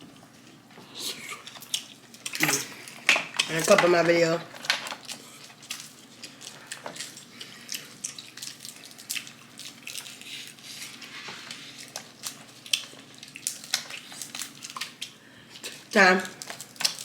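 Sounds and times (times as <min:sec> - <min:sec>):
wet eating sounds: 0:00.4 - 0:03.6, 0:05.0 - 0:17.0
crab shells cracking: 0:11.8 - 0:17.0.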